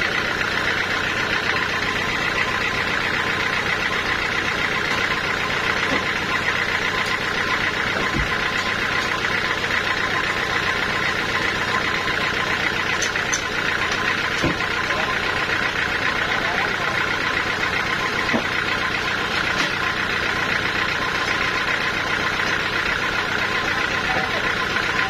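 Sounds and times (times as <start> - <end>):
sawmill machinery running: 0.0 - 25.0.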